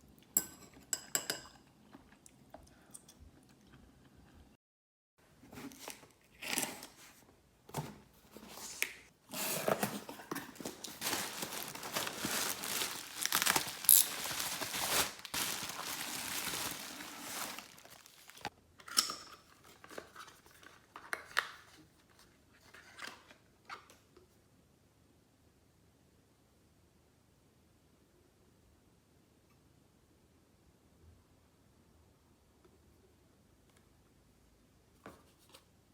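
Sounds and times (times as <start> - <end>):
packaging crinkling and tearing: 9.5 - 18.5.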